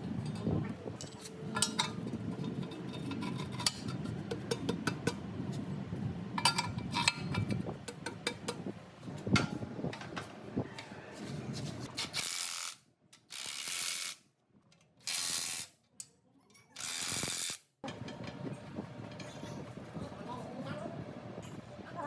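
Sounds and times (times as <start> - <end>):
metal parts clanking: 0.2 - 4.2.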